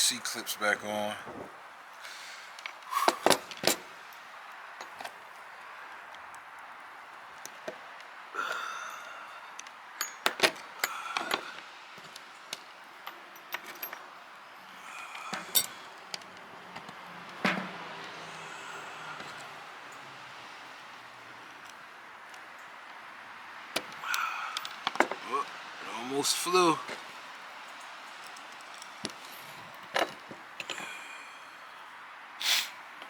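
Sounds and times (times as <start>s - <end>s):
metal parts clicking and clinking: 2.5s - 3.9s, 4.8s - 5.2s, 9.6s - 17.7s, 23.7s - 25.2s, 26.9s - 30.9s.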